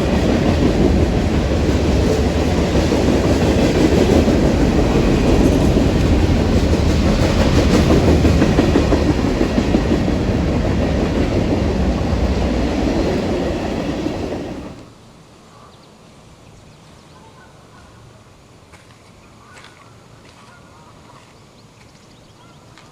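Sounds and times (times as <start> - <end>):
train rolling past: 0.0 - 14.9.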